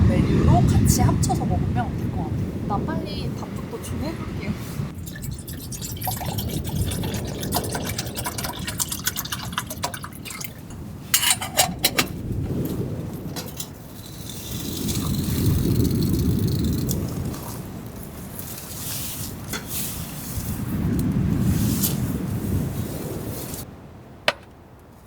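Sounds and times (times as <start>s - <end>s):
water poured and swished in pot: 4.9s - 12.2s, 13.2s - 23.7s
water dripping: 4.9s - 18.7s
pot clinking: 5.0s - 12.2s.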